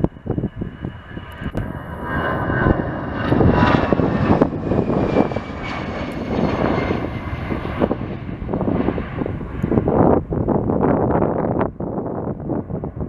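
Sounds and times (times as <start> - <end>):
jet airliner engines passing: 0.0 - 13.0.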